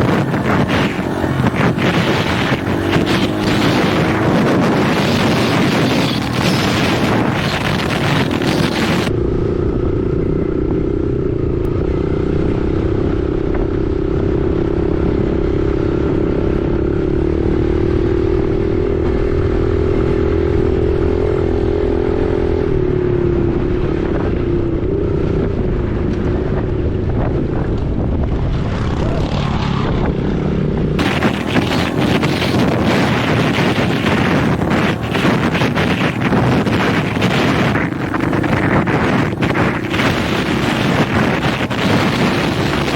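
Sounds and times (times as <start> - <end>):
dirt bike engine running: 0.0 - 15.4, 24.1 - 42.9
wind noise on microphone: 0.0 - 42.9.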